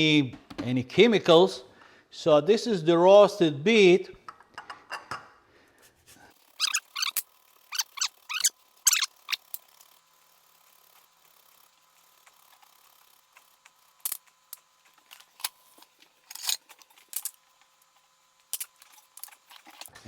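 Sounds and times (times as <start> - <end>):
kitchen tools clicking and knocking: 4.2 - 5.4.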